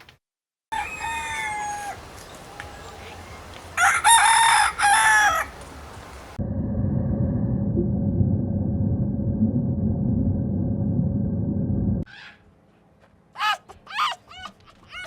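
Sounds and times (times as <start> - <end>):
rooster crowing: 0.7 - 2.2, 3.8 - 5.6
steady low rumbling: 6.2 - 12.1.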